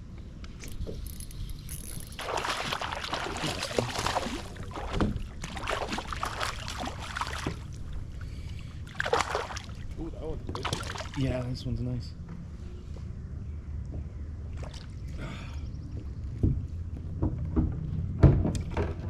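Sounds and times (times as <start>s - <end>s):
water splashing around kayak: 1.7s - 11.2s.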